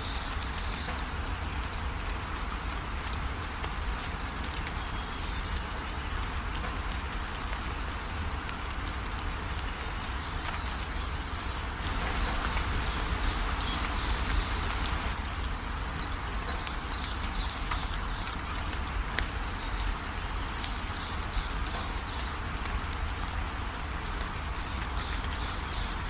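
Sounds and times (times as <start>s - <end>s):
raindrops ticking: 0.0s - 26.0s
steady rain: 0.0s - 26.0s
birds chirping: 9.4s - 23.6s.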